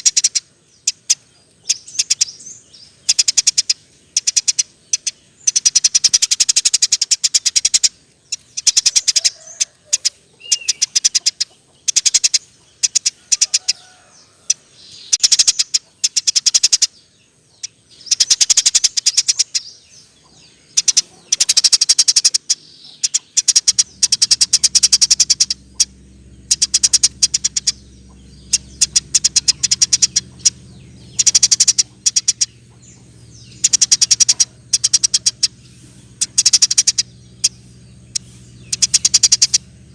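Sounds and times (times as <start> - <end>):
faint low hum: 0.0 - 39.9
sparrow chirping: 0.0 - 39.9.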